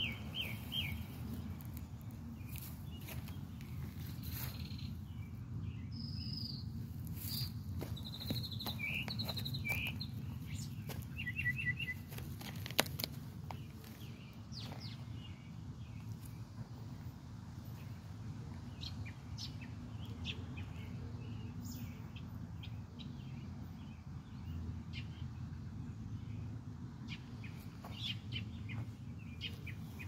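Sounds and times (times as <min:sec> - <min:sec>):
steady low rumble: 0:00.0 - 0:20.2
small birds chirping: 0:00.0 - 0:30.0.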